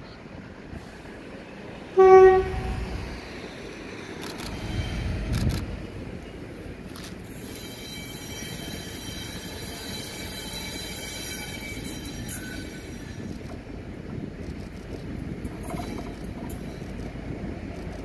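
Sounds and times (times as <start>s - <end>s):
diesel locomotive engine: 0.0s - 18.0s
low rumble of train: 0.0s - 18.0s
high wheel squeal: 4.3s - 5.3s, 7.2s - 13.3s.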